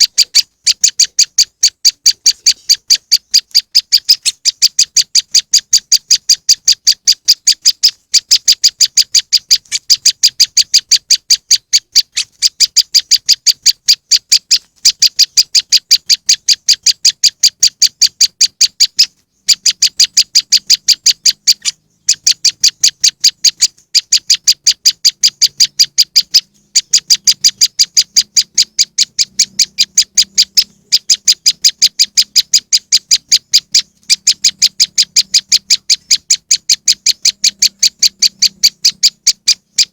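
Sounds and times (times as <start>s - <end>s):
bird calling sharp chips: 0.0s - 39.9s.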